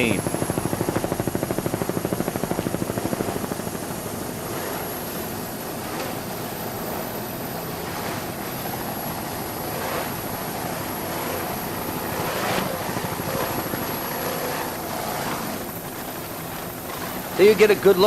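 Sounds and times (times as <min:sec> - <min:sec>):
helicopter rotor and engine drone: 0:00.0 - 0:18.0.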